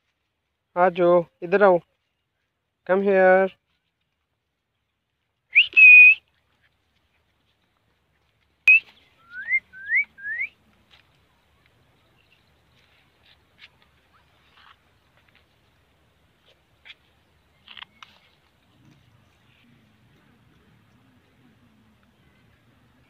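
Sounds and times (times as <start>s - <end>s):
clear pure whistles: 5.5s - 6.2s, 8.7s - 10.6s.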